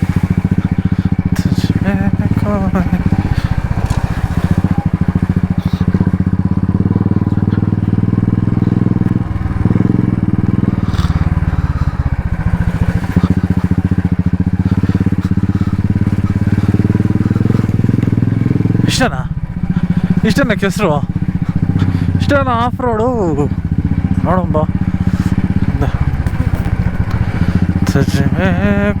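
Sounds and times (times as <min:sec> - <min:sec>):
motorcycle engine thumping: 0:00.0 - 0:29.0.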